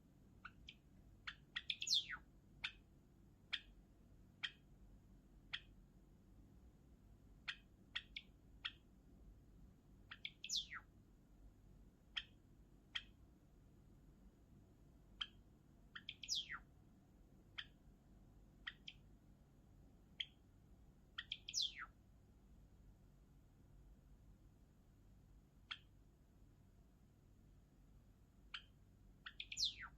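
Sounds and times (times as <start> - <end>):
sparrow chirping: 0.3 - 4.8, 5.4 - 5.8, 7.4 - 9.0, 9.9 - 11.0, 12.0 - 13.3, 15.0 - 16.7, 17.4 - 19.2, 20.0 - 22.0, 25.6 - 26.0, 28.4 - 29.9.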